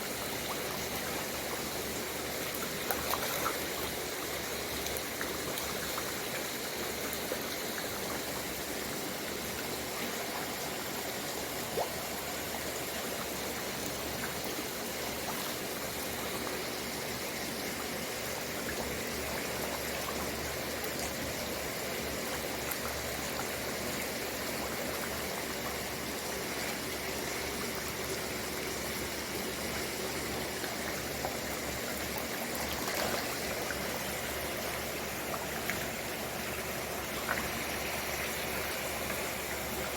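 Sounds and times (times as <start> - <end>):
rush of splashing water: 0.0 - 39.9.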